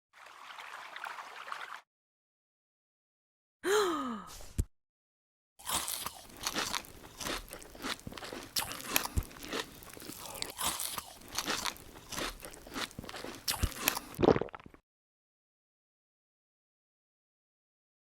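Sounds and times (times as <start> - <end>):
crunchy chewing: 5.6 - 14.7.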